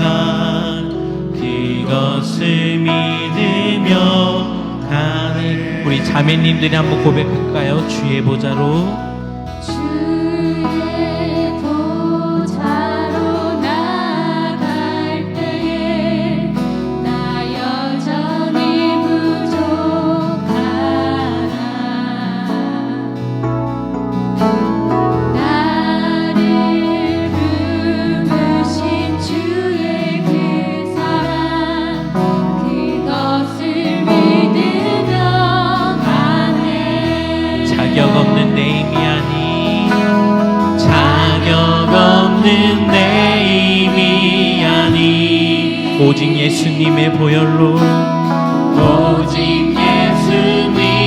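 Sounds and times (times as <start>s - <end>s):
women singing worship song: 0.0s - 8.9s, 9.6s - 23.3s, 25.4s - 51.0s
instrumental accompaniment: 0.0s - 51.0s
band accompaniment: 36.0s - 51.0s.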